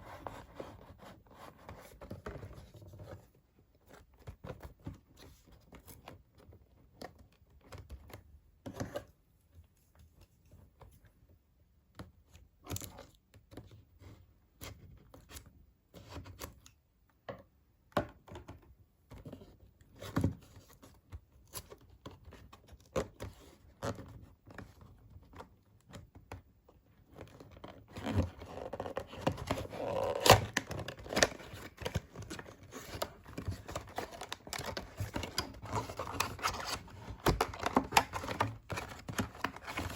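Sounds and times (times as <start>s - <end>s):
packaging knocks and clicks: 29.2s - 39.9s.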